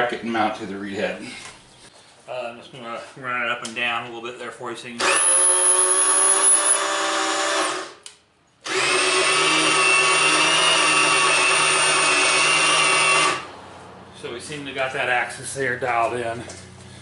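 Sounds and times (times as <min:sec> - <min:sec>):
cordless drill running: 0:05.0 - 0:08.0, 0:08.6 - 0:13.4.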